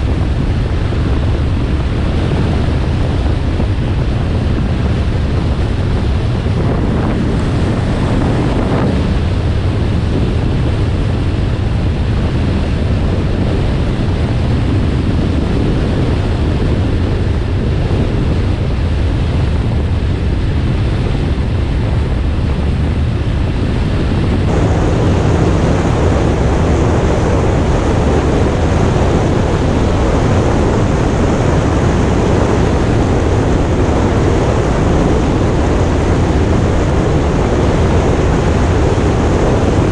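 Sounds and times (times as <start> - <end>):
wind rushing over microphone: 0.0 - 39.9
motorcycle engine rumble: 16.3 - 39.9.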